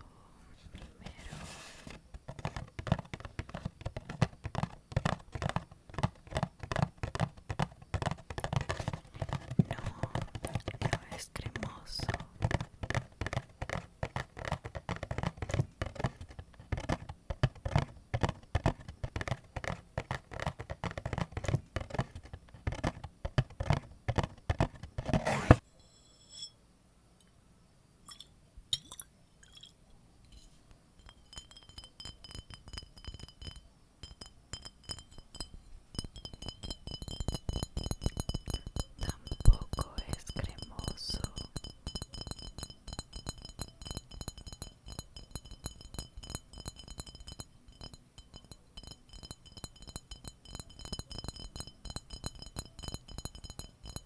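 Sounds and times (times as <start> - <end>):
tapping and clicking on objects: 2.1 - 25.6, 31.0 - 54.0
light taps and clinks: 2.1 - 26.6, 28.1 - 54.0
steady ringing tone: 31.0 - 54.0.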